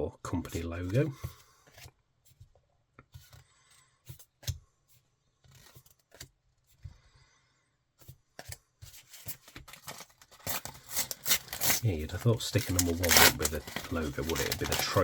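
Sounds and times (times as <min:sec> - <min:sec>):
paper stickers rustling and tapping: 0:08.4 - 0:15.0.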